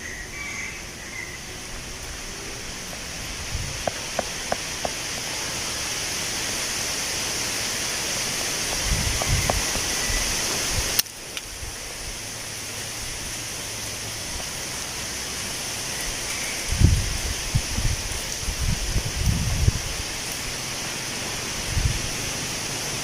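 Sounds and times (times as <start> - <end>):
wind rumble on microphone: 0.0 - 14.6, 15.5 - 23.0
wind rustling tree leaves: 0.0 - 23.0.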